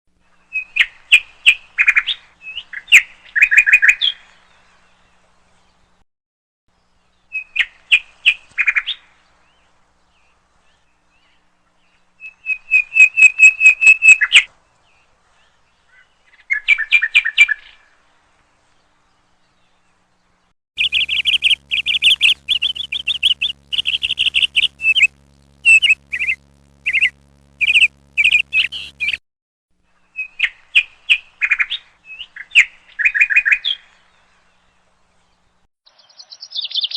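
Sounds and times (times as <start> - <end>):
faint low hum: 19.9 - 29.2
bird chirping: 20.8 - 29.2, 35.9 - 36.9.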